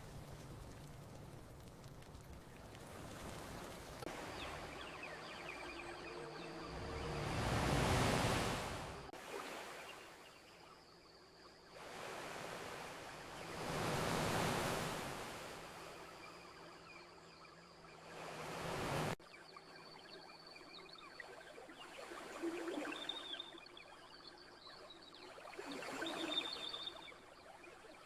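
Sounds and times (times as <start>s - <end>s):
ocean waves washing onto beach: 0.0s - 10.5s, 11.8s - 16.8s, 17.9s - 19.2s.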